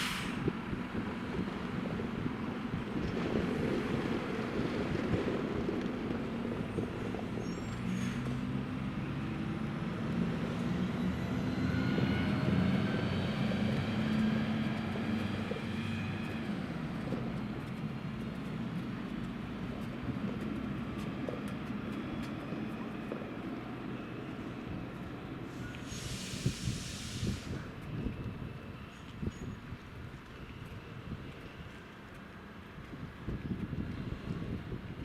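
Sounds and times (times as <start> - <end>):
diesel train engine revving: 0.0 - 27.8.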